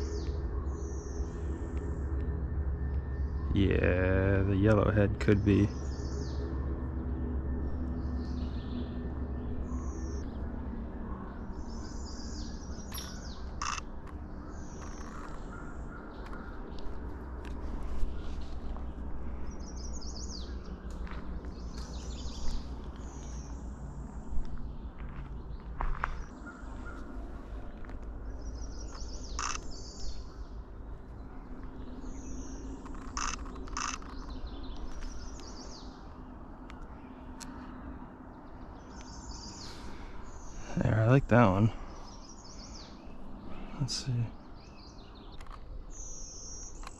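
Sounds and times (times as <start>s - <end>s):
low rumble: 0.0s - 40.8s
buzzy bird song: 0.0s - 46.9s
songbird singing trilled phrases: 11.8s - 13.8s, 28.6s - 30.2s
sharp clicks: 29.0s - 29.7s, 32.8s - 35.5s.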